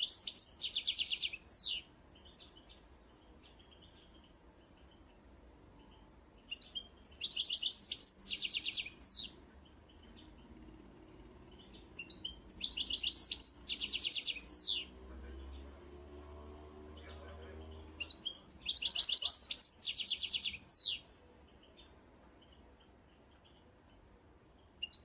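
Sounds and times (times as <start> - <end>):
songbird singing trills: 0.0 - 15.8, 16.9 - 25.0.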